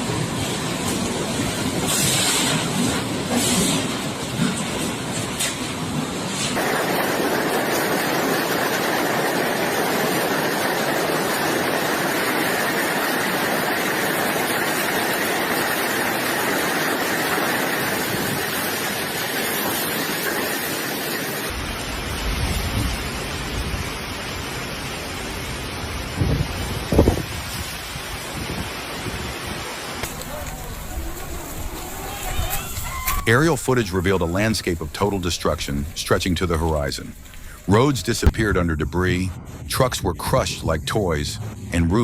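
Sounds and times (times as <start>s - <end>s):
roaring wind: 0.0s - 36.1s
driving rain: 0.0s - 42.0s
wind buffeting microphone: 26.1s - 32.9s.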